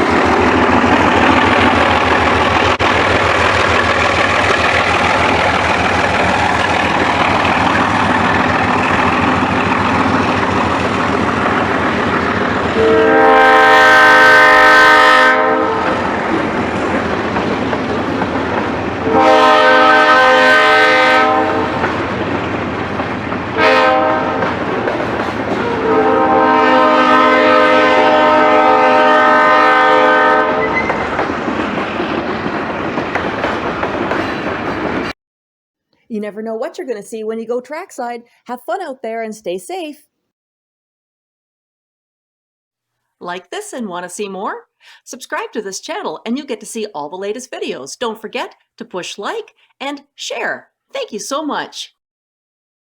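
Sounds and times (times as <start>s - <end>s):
train rumbling along track: 0.0s - 35.2s
locomotive air horn: 12.7s - 16.1s, 19.0s - 21.8s, 23.6s - 24.6s, 25.6s - 31.1s.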